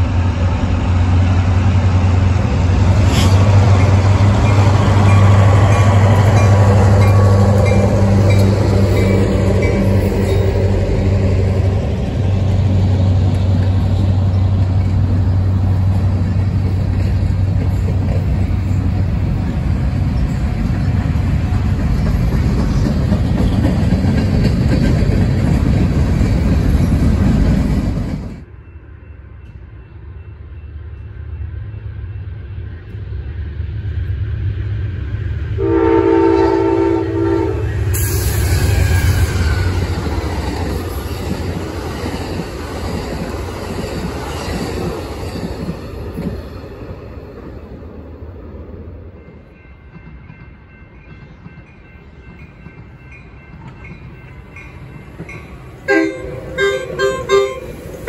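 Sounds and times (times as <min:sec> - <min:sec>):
freight train rumble and clatter: 0:00.0 - 0:58.0
locomotive horn chord: 0:35.6 - 0:38.0, 0:55.9 - 0:57.8.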